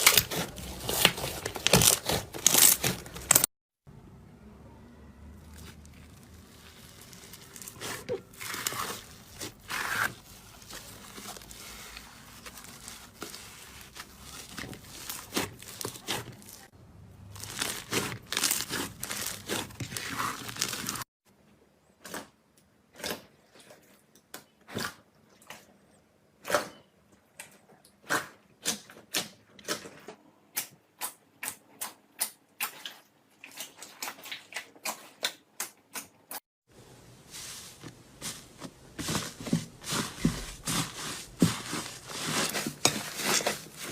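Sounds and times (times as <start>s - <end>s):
slime squishing by hand: 5.4s - 16.7s, 17.4s - 21.0s, 37.3s - 43.9s.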